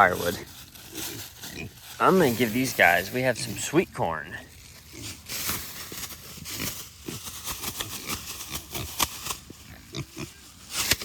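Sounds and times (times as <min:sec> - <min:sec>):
pigs grunting: 0:00.0 - 0:03.6, 0:06.4 - 0:10.5
rustling and crackling: 0:00.0 - 0:11.0.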